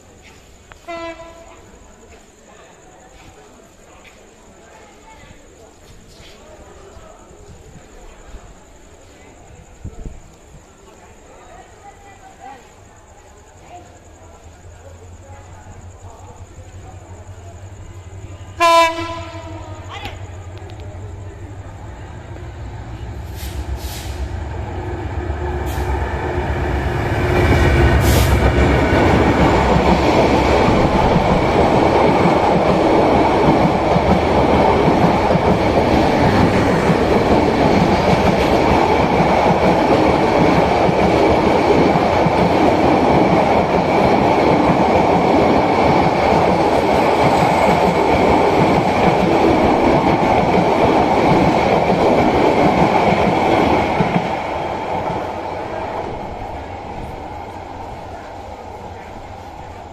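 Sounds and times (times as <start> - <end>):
passenger train passing: 0.0 - 59.9
train wheels clattering on rails: 22.9 - 59.4.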